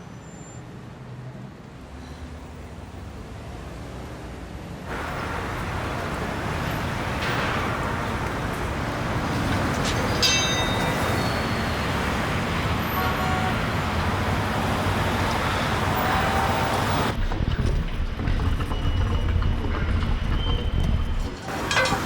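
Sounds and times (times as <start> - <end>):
street traffic rumble: 0.0 - 22.0.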